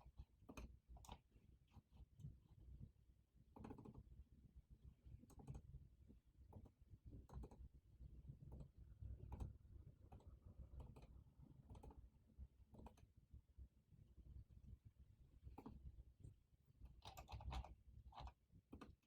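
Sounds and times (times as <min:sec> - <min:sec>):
computer keyboard keystrokes: 0:17.0 - 0:19.0.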